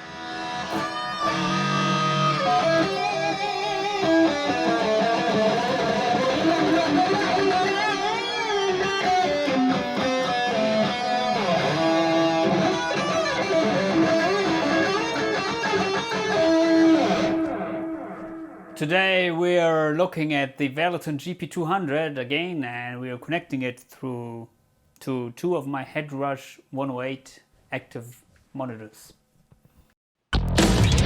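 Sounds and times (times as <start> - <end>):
electric guitar lead line: 0.0 - 18.8.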